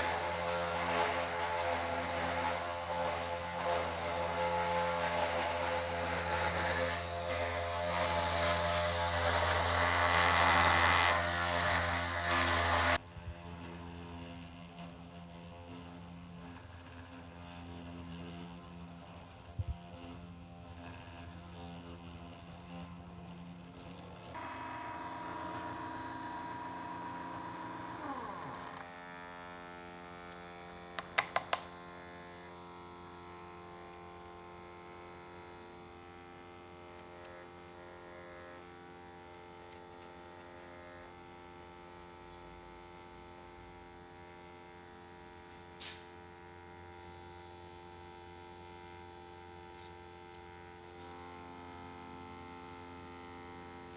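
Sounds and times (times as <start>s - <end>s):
machine motors humming and whining: 0.0s - 53.9s
high-pitched machine tone: 24.4s - 30.4s.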